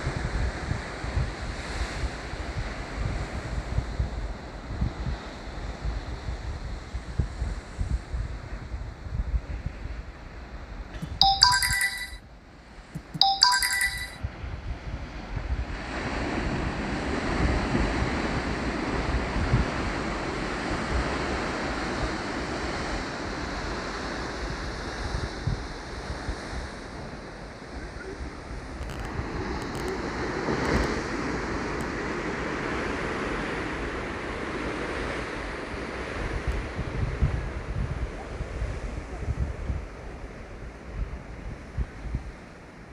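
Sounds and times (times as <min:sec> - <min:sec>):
short ringing tones: 0:11.0 - 0:12.2, 0:13.0 - 0:14.2
wind on microphone: 0:36.0 - 0:42.9.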